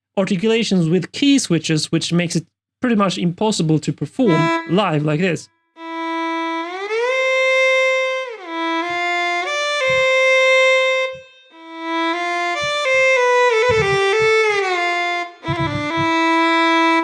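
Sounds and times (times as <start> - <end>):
bowed string notes with slides: 4.3 - 16.5
soft low knocks: 9.8 - 10.2, 13.7 - 14.4, 15.5 - 16.2.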